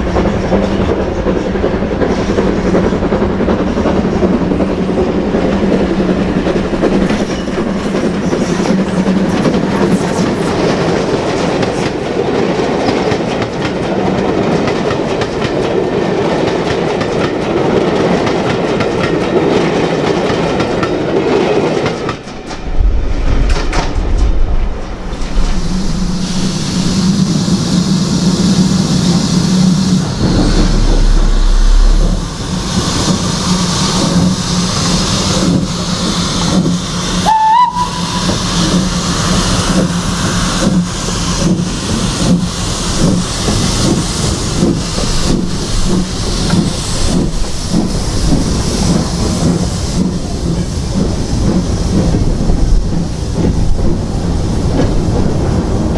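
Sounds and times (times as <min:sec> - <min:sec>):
wheels knocking: 0:00.0 - 0:12.1, 0:21.8 - 0:55.9
steam train running past: 0:00.0 - 0:55.9
steam whistle blast: 0:25.3 - 0:35.2, 0:37.1 - 0:40.6.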